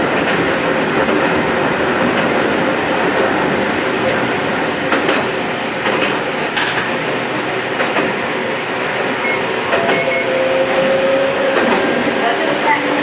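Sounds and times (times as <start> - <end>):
electric train rumble: 0.0 - 13.0.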